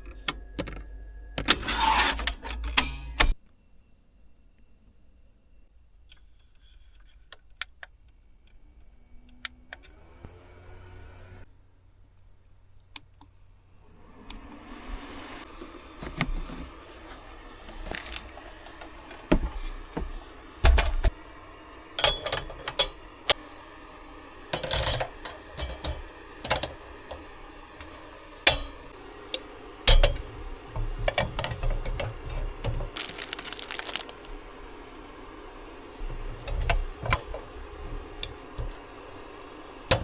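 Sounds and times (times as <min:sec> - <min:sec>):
small objects clicking and clinking: 0:33.0 - 0:34.4.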